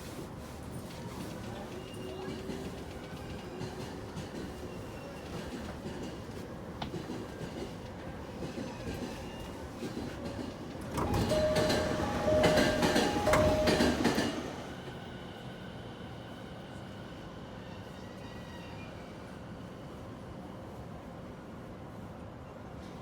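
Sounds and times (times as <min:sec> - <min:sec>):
train hum: 0:00.0 - 0:23.0
train door engine groaning: 0:10.8 - 0:14.8
door warning tone: 0:11.0 - 0:14.4.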